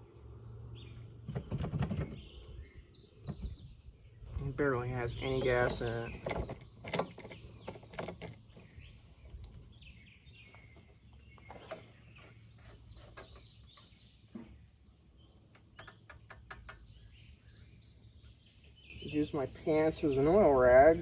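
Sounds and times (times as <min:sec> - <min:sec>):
birds chirping and calling: 0:00.0 - 0:21.0
handling clicks and knocks: 0:05.0 - 0:09.6, 0:10.4 - 0:14.6, 0:15.5 - 0:17.0.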